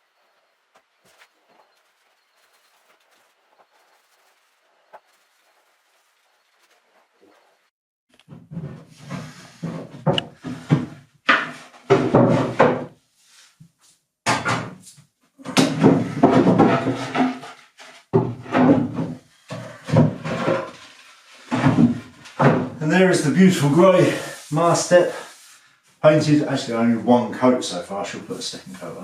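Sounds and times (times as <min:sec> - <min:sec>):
wooden knocks and scrapes: 0:06.6 - 0:13.0, 0:14.3 - 0:25.6.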